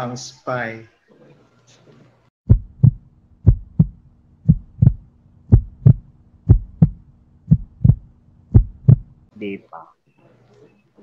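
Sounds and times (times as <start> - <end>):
heartbeat thumps: 2.4 - 9.3.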